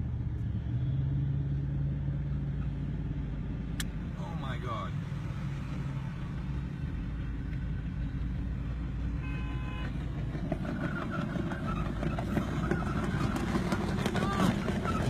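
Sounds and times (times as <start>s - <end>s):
vehicle road and engine noise: 0.0s - 15.0s
short horn toot: 9.2s - 10.0s.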